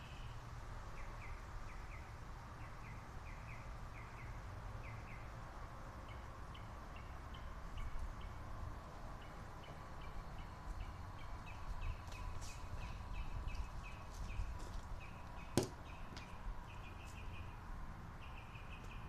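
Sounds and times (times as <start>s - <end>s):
bird chirping: 0.0s - 5.3s, 9.1s - 19.0s.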